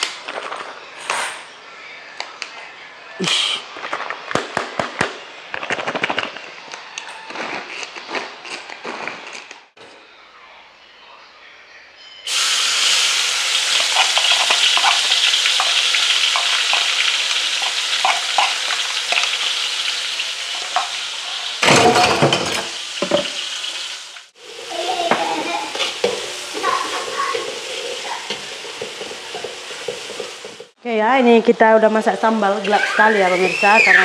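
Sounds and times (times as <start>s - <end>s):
chillies sizzling in hot oil: 12.3s - 21.8s, 22.4s - 30.8s
spoon scraping pan: 13.6s - 19.7s, 25.1s - 30.8s
spoon stirring in a wok: 13.6s - 19.7s, 25.7s - 30.8s
spoon knocking on pan: 25.1s - 30.7s.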